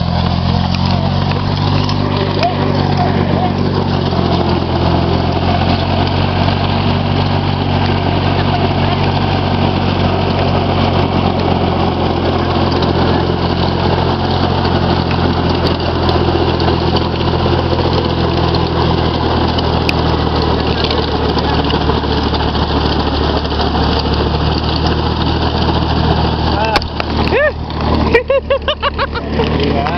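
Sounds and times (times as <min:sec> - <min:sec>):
tractor engine running: 0:00.0 - 0:29.9.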